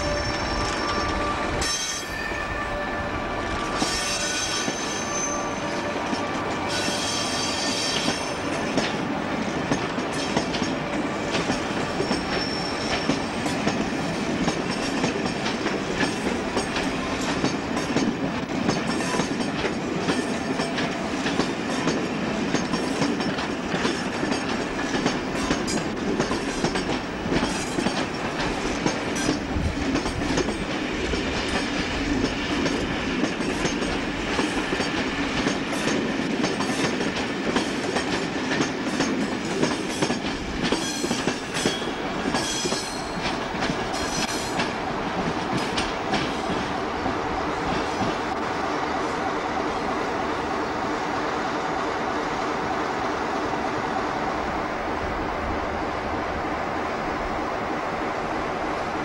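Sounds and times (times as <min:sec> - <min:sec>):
high squealing tones: 0:00.0 - 0:08.0
train wheels rumbling on track: 0:00.0 - 0:59.0.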